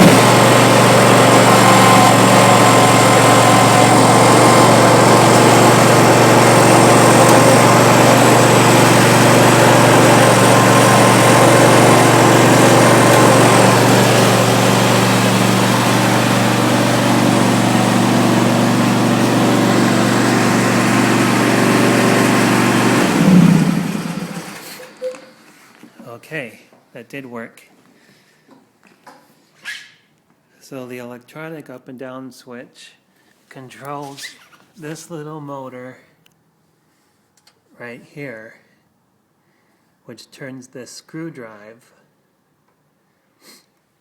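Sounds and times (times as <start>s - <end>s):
lawn tractor engine running: 0.0s - 25.1s.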